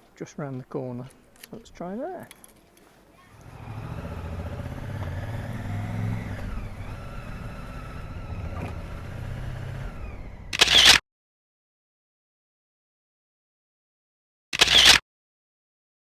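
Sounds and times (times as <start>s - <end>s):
motorcycle engine accelerating: 3.4s - 10.9s.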